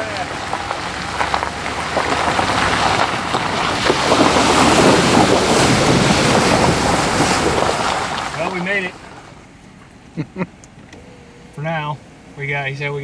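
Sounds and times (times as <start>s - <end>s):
floodwater rushing and splashing: 0.0s - 9.6s.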